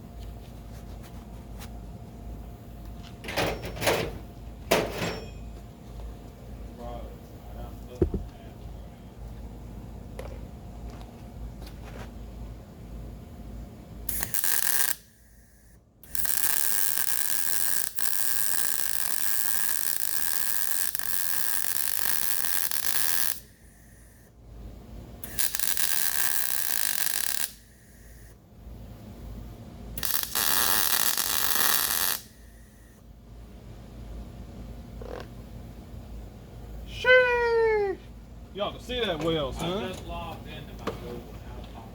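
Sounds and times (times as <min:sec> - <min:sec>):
arc welding crackling hiss: 0:14.1 - 0:24.3, 0:25.2 - 0:28.4, 0:30.0 - 0:33.0.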